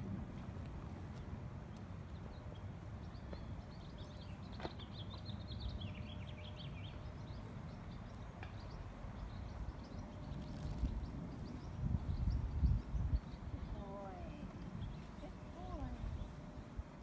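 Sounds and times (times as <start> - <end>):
small birds chirping: 1.1 - 16.6
wind on microphone: 9.4 - 17.0.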